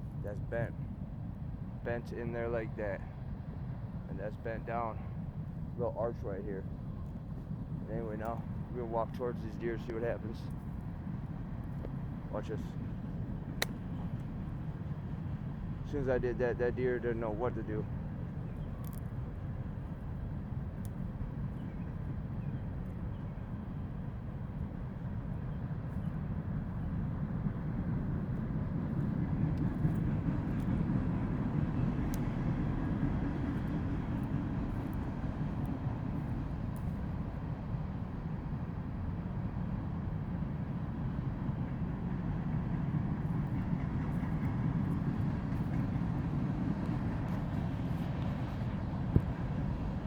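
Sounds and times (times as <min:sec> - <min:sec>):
train rumbling by: 0:38.8 - 0:50.0.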